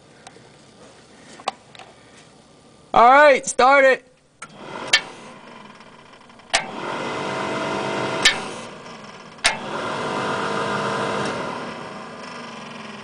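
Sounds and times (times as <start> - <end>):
starter motor click: 4.4 - 13.0
starter motor cranking whine: 4.4 - 13.0.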